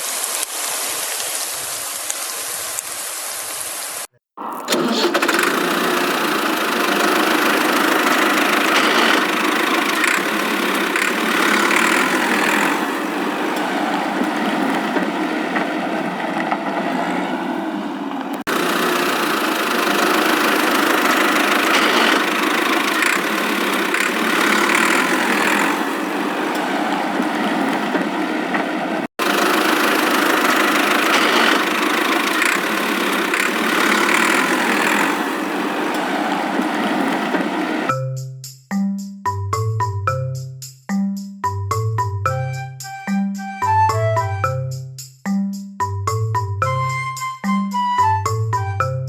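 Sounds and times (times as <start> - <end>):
engine running: 4.4 - 37.9
marimba music jingle: 41.0 - 49.0.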